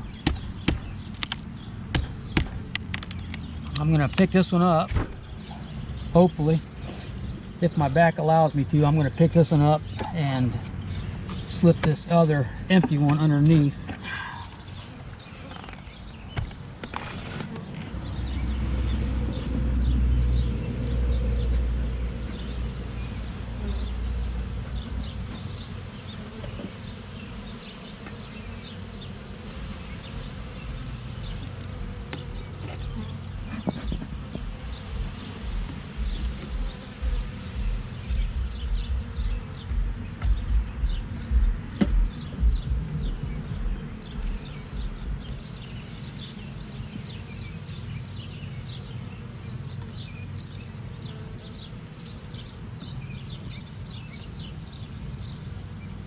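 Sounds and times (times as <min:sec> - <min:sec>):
honeybees buzzing: 0:00.0 - 0:56.0
knocks on wooden hive boxes: 0:00.1 - 0:03.5, 0:16.3 - 0:16.9, 0:30.6 - 0:45.4.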